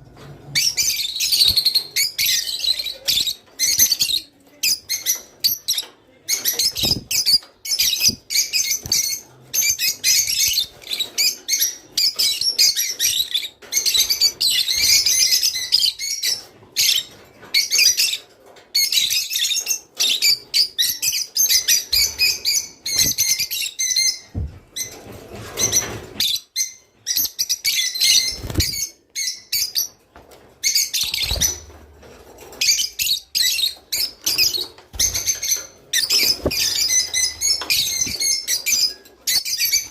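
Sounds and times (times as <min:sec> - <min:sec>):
lovebirds chattering: 0:00.5 - 0:25.0, 0:32.5 - 0:39.9.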